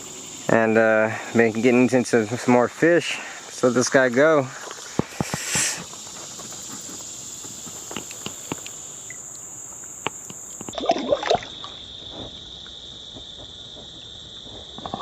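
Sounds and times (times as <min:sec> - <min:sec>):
creek water trickling: 0:00.0 - 0:11.9
insects droning: 0:00.0 - 0:15.0
water splashing and sloshing: 0:10.5 - 0:12.4.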